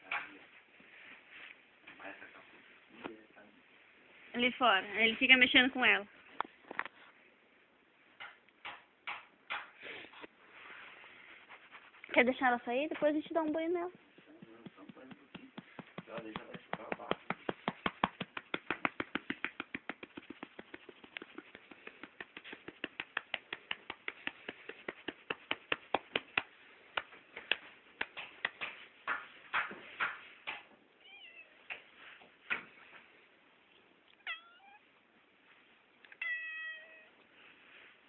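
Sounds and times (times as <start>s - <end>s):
cat meowing: 31.0s - 31.7s, 34.2s - 34.9s, 36.1s - 37.2s.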